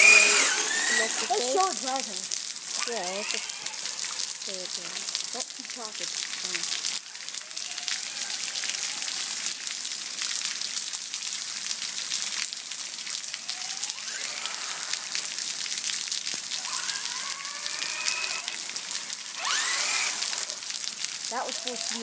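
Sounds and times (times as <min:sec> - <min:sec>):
rc truck motor whining: 0:00.0 - 0:02.1, 0:02.7 - 0:05.0, 0:06.6 - 0:09.6, 0:13.4 - 0:22.0
heavy rain hissing: 0:00.0 - 0:22.0.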